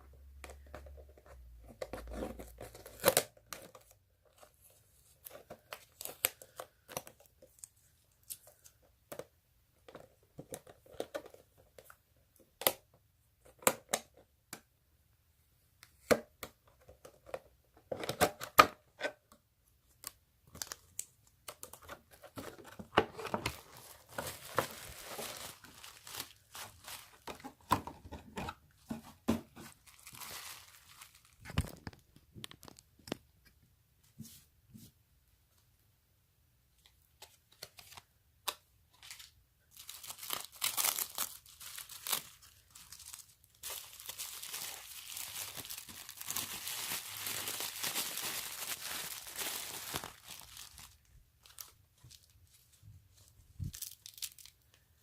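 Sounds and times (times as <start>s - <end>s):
packaging clicks and crinkles: 19.8s - 28.1s, 29.6s - 33.2s, 37.2s - 52.6s, 53.2s - 54.8s
packaging rustling: 20.5s - 32.8s, 39.0s - 54.6s.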